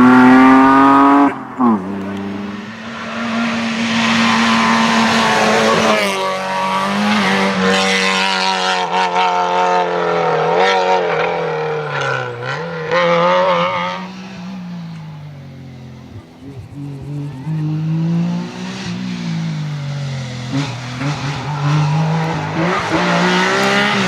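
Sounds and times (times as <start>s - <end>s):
exhaust crackles: 0.0s - 2.7s, 14.0s - 24.0s
rally car engine revving: 0.0s - 24.0s.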